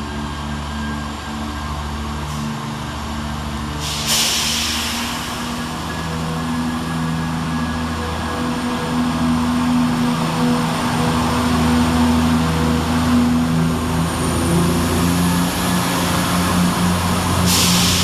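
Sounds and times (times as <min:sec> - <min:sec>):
diesel train engine hum: 0:00.0 - 0:18.0
hiss of released air: 0:03.8 - 0:05.9, 0:17.4 - 0:18.0.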